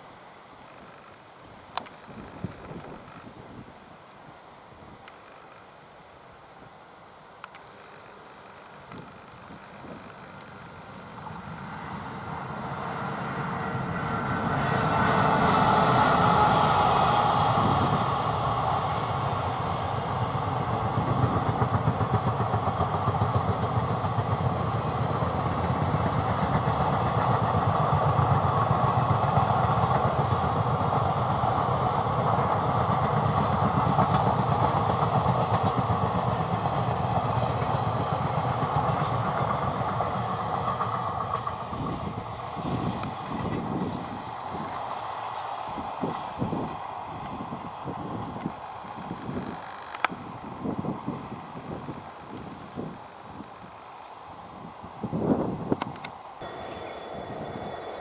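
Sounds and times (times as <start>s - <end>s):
electric locomotive passing: 0.0s - 58.0s
wheels clattering on track: 20.6s - 31.6s.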